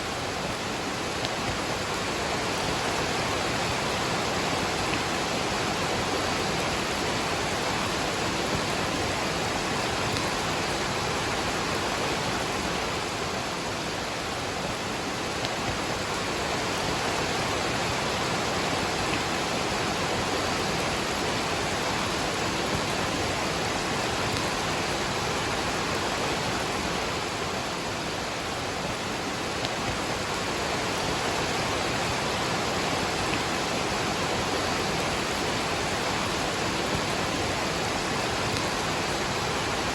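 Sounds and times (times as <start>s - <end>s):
rush of falling water: 0.0s - 39.9s.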